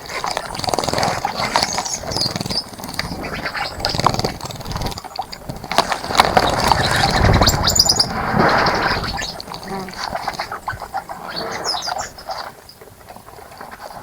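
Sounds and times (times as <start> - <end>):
water splashing in bird bath: 0.0 - 14.0
low rumble: 6.2 - 10.2.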